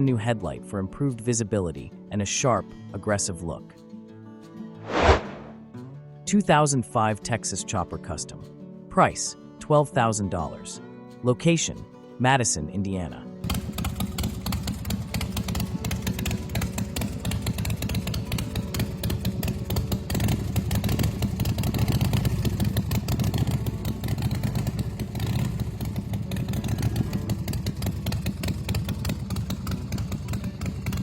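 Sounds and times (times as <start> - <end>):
motorcycle engine running: 13.4 - 31.0.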